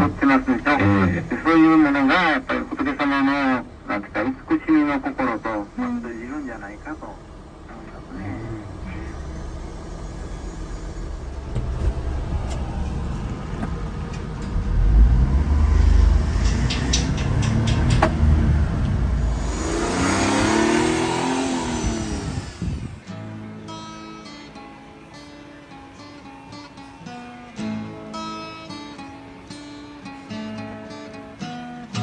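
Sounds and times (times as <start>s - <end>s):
small truck engine revving: 5.6s - 23.9s.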